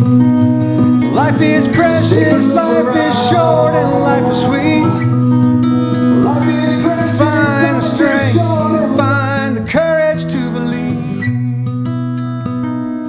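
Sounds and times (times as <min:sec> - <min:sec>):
acoustic guitar: 0:00.0 - 0:13.0
person singing: 0:01.1 - 0:11.1.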